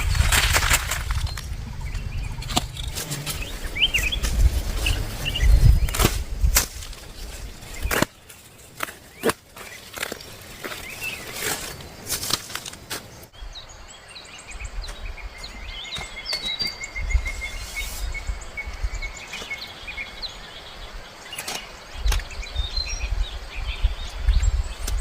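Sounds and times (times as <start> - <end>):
low rumble: 0.0 - 7.6
birds chirping: 0.0 - 25.0.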